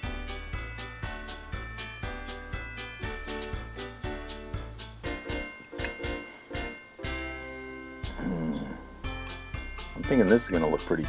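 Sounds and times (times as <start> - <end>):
background music with steady beat: 0.0 - 11.0
jingling percussion: 0.0 - 11.0.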